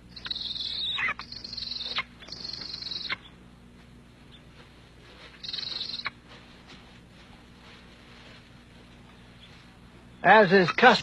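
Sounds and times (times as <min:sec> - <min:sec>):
low steady hum: 0:00.0 - 0:11.0
eagle high-pitched cries: 0:00.1 - 0:03.4, 0:05.4 - 0:06.2, 0:10.2 - 0:11.0.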